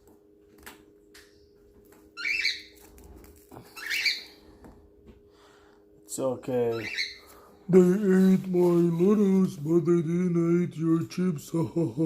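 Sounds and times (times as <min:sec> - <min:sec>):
faint steady hum: 0:00.0 - 0:12.0
pet birds squawking: 0:02.2 - 0:02.9, 0:03.7 - 0:04.4, 0:06.6 - 0:07.5.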